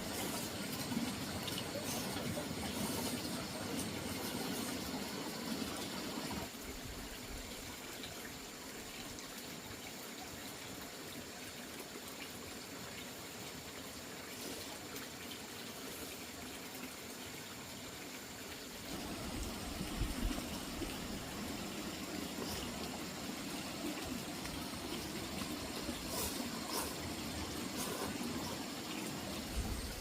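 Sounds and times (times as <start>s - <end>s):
deep water rush: 0.0s - 6.5s, 18.7s - 30.0s
water running steadily: 0.0s - 30.0s.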